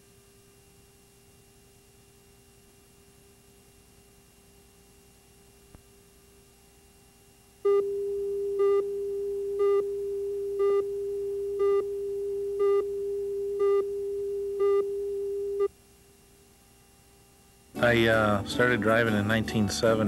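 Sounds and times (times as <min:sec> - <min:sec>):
electronic test tone: 0:07.6 - 0:15.7.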